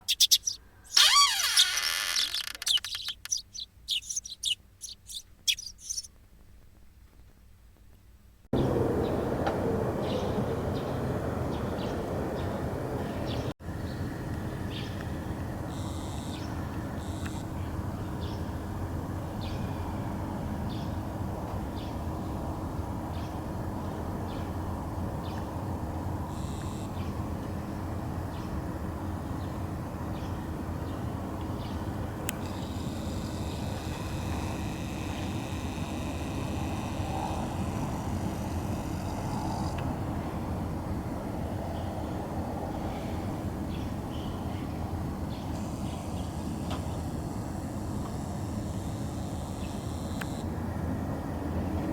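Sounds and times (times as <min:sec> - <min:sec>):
high even-pitched bird calling: 0:00.0 - 0:06.1
small birds chirping: 0:00.0 - 0:06.1, 0:08.6 - 0:15.1, 0:15.7 - 0:18.6, 0:25.2 - 0:35.5, 0:47.7 - 0:50.4.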